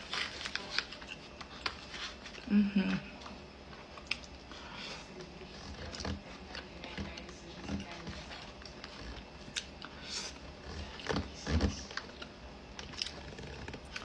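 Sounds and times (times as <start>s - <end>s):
person chewing: 3.2s - 6.6s, 8.6s - 14.0s.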